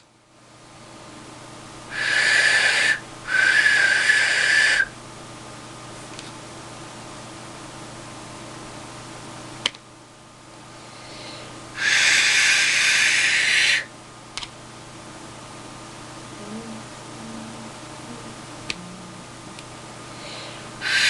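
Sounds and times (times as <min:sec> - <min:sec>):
breath blown through clay whistle: 0:01.9 - 0:05.0, 0:11.0 - 0:13.9, 0:20.2 - 0:21.0
sharp click: 0:14.4 - 0:14.6.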